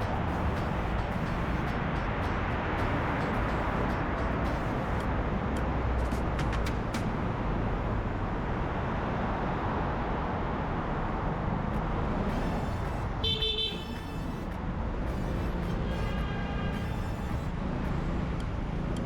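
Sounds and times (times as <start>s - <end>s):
city road traffic: 0.0s - 19.0s
short car horn toot: 13.2s - 14.0s.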